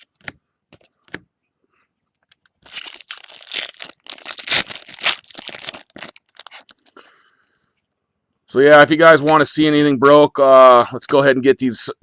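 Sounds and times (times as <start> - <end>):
wrapper tearing and crinkling: 2.3 - 6.9.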